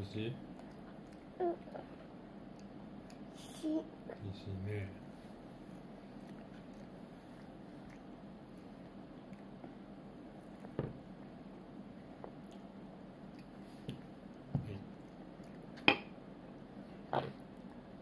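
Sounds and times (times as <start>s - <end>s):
toddler chewing fried food: 0.2s - 4.3s, 5.1s - 18.0s.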